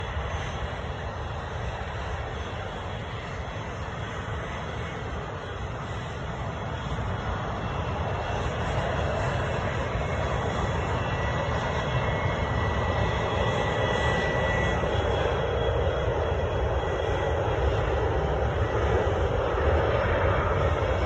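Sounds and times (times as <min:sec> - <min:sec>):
airplane engines running: 0:00.0 - 0:21.0.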